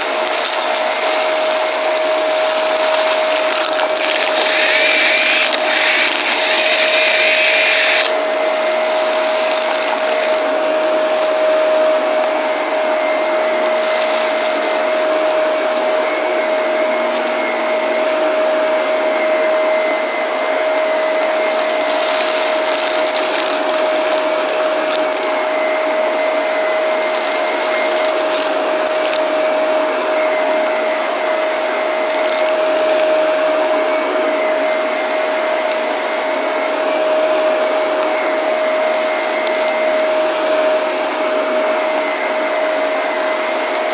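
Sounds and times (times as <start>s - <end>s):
debris crackling in vacuum: 0.0s - 16.2s
vacuum cleaner motor whine: 0.0s - 43.9s.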